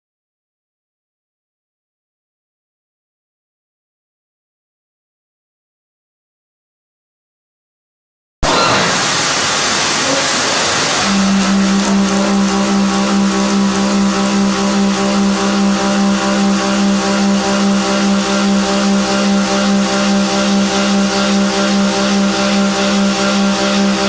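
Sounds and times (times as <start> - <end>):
milling machine cutting metal: 8.4 - 24.0.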